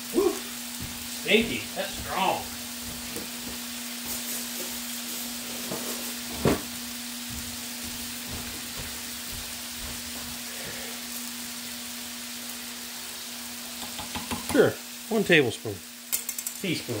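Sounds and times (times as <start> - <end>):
steady hum: 0.0 - 11.4
chicken sizzling on a grill: 0.0 - 17.0.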